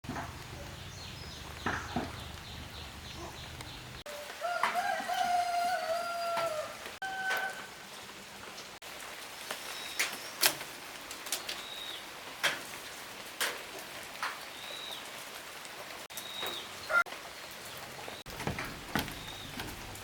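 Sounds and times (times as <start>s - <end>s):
steady outdoor hiss: 0.0s - 7.0s
bird chirping: 0.4s - 4.0s, 18.1s - 20.0s.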